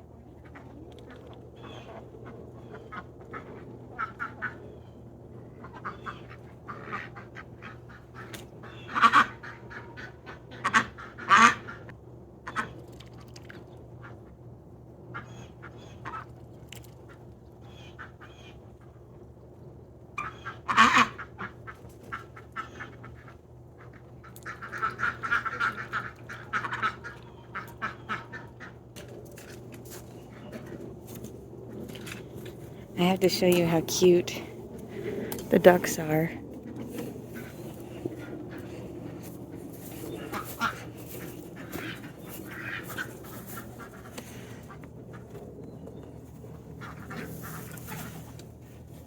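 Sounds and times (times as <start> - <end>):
ducks quacking: 0.4 - 4.7, 5.6 - 11.9, 20.2 - 28.9, 32.6 - 45.4, 46.8 - 48.4.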